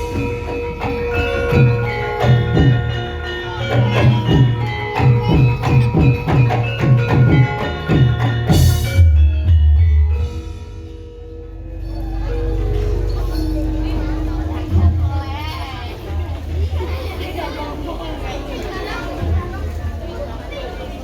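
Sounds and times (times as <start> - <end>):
deep ringing tone: 0.0 - 16.2
struck metal tones: 0.0 - 16.4
drum strokes: 0.0 - 16.8.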